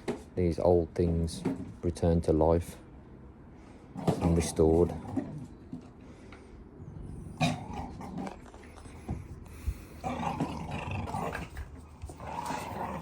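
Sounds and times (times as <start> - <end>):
dog growling in play: 7.1 - 13.0.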